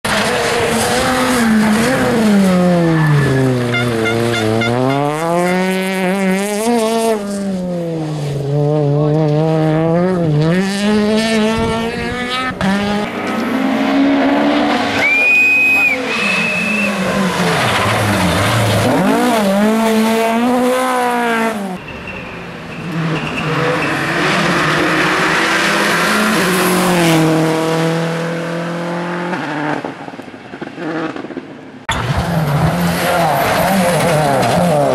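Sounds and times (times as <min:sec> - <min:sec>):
rally car engines revving: 0:00.0 - 0:34.9
short high whistle: 0:15.0 - 0:17.0.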